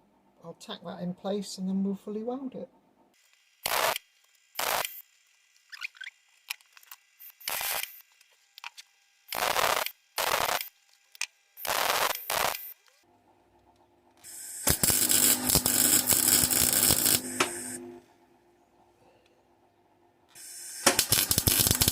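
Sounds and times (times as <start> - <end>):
arc welding crackling: 3.2 - 6.1, 6.7 - 8.1, 9.3 - 10.8, 11.6 - 13.0, 14.2 - 17.8, 20.4 - 21.9.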